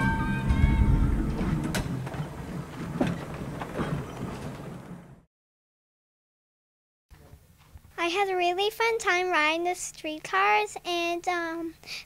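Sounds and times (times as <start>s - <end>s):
streetcar rumbling on rails: 0.0s - 5.2s.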